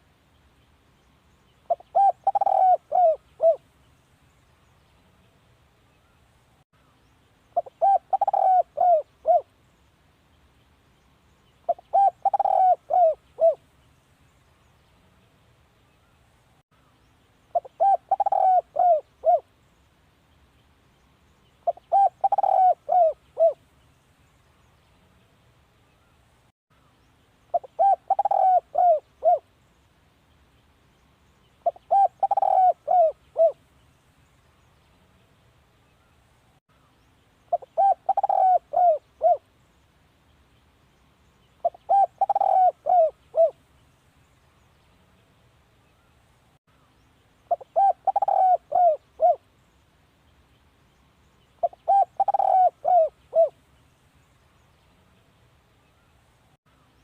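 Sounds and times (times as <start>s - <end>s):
dove cooing: 1.7s - 3.6s, 7.6s - 9.5s, 11.7s - 13.6s, 17.5s - 19.5s, 21.6s - 23.6s, 27.5s - 29.5s, 31.6s - 33.6s, 37.5s - 39.4s, 41.6s - 43.6s, 47.5s - 49.5s, 51.6s - 53.6s.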